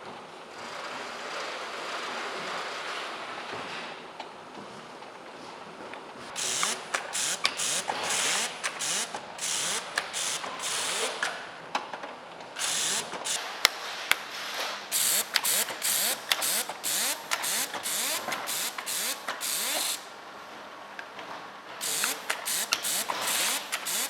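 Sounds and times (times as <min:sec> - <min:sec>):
air hissing bursts: 0:06.4 - 0:11.3, 0:12.6 - 0:13.5, 0:14.9 - 0:20.1, 0:21.8 - 0:24.0.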